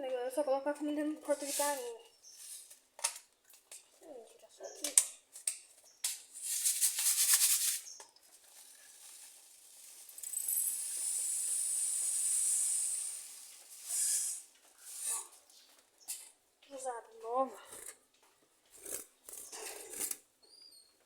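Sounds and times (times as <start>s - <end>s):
birdseed rattling and pouring: 6.2s - 15.1s.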